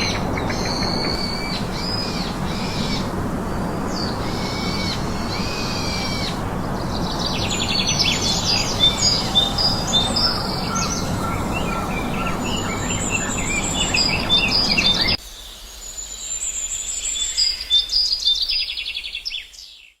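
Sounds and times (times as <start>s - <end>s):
steady rushing noise: 0.0s - 15.2s
birds chirping and singing: 0.0s - 20.0s.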